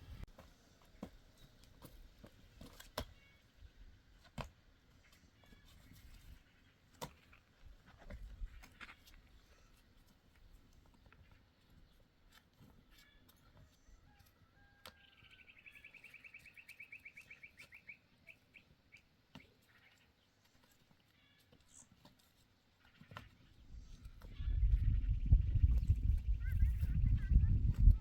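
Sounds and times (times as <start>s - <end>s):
faint bird call trill: 12.9s - 20.2s.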